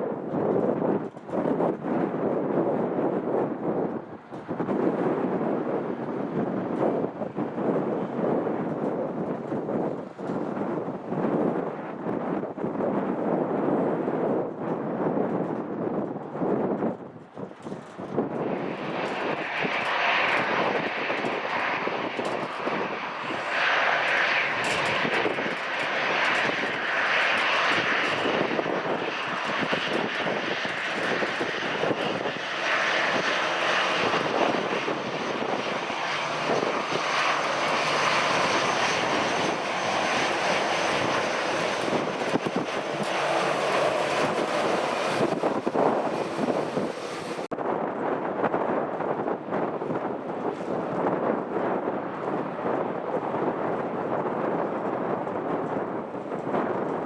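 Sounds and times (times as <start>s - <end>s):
jet engines roaring: 0.0s - 14.6s, 17.1s - 57.0s
high engine whine: 17.4s - 47.6s.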